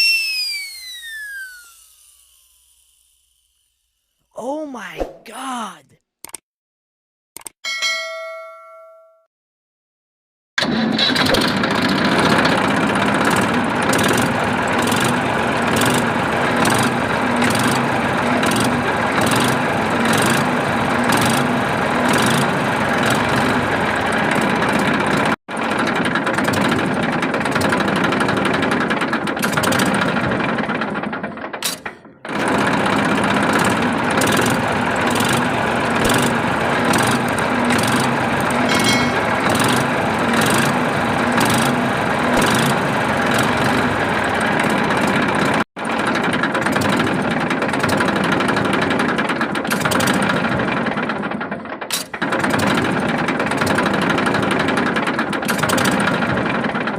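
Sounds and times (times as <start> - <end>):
small motor running: 0.1 - 3.6.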